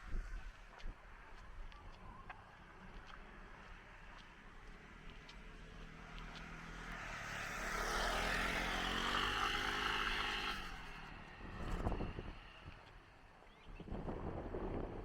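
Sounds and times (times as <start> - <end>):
engine passing by: 3.2 - 13.3.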